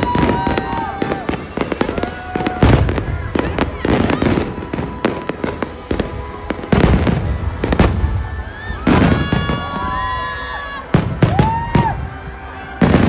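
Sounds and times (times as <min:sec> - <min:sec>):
fireworks heavy booms: 0:00.0 - 0:10.2, 0:10.8 - 0:13.0
fireworks sharp cracks: 0:00.0 - 0:10.2, 0:10.8 - 0:13.0.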